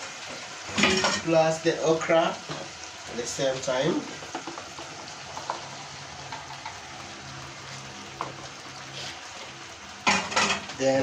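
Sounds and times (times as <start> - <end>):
vegetables sizzling in gravy: 0.0 - 11.0.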